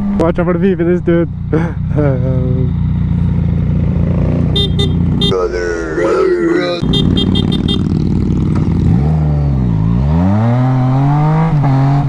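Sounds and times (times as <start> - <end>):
motorcycle engine accelerating: 0.0 - 5.3, 6.8 - 12.0
short high horn beeps: 4.6 - 5.3, 6.8 - 7.9.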